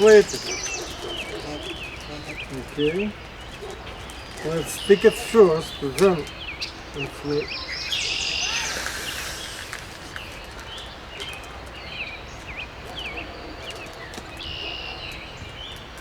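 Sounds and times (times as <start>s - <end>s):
rustling hiss: 0.0s - 12.6s
small birds chirping: 0.0s - 16.0s.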